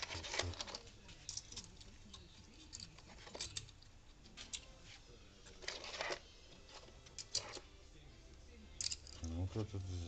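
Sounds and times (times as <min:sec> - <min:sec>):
small parts clicking: 0:08.8 - 0:09.4.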